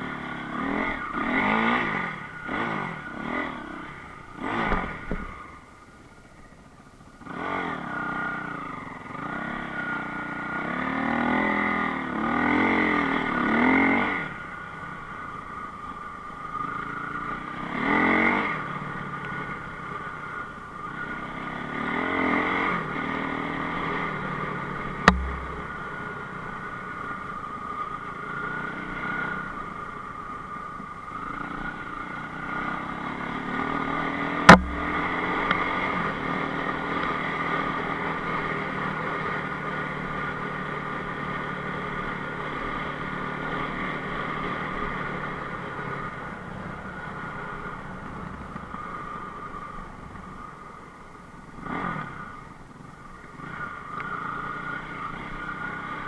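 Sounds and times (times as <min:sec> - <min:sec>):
motorcycle engine revving: 0:00.0 - 0:05.6, 0:07.2 - 0:30.1, 0:31.1 - 0:50.4
sharp knocks: 0:25.0 - 0:25.9, 0:34.5 - 0:35.2.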